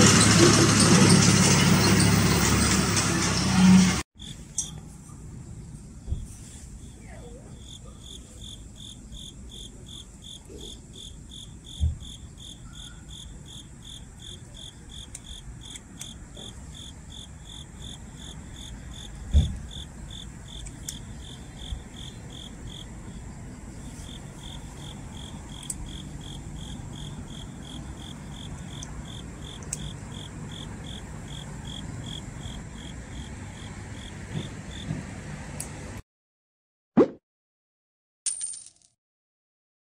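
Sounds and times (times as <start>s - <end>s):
cricket chirping: 4.2s - 35.0s.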